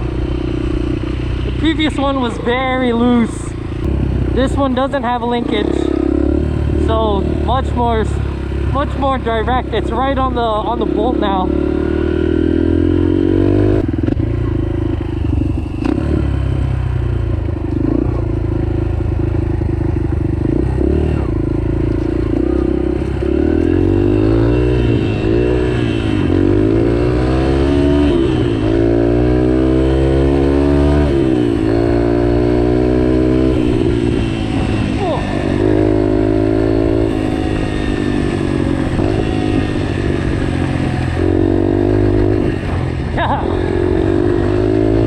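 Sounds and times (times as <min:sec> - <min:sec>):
dirt bike engine revving: 0:00.0 - 0:45.0
knocks and clatter from trail: 0:21.8 - 0:23.8.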